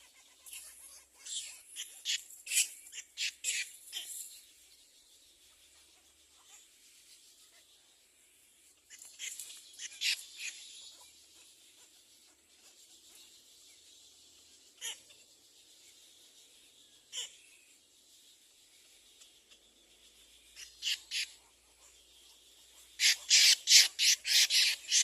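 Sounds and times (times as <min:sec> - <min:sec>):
sharp bird chirps: 0:13.9 - 0:25.0.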